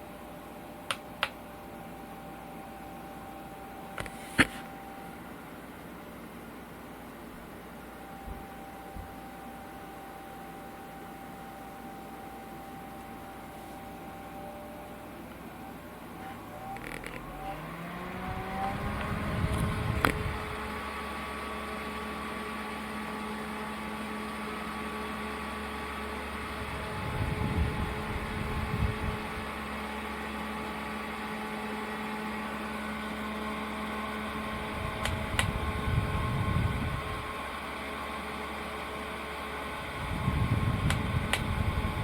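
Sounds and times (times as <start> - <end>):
desk fan motor hum: 0.0 - 42.0
airflow buffeting microphone: 18.2 - 20.8, 34.6 - 37.3, 39.8 - 42.0.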